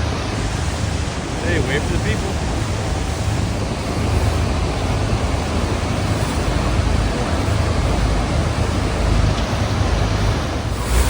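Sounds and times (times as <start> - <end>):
waterfall roar: 0.0 - 11.0
wind with spray: 0.0 - 11.0.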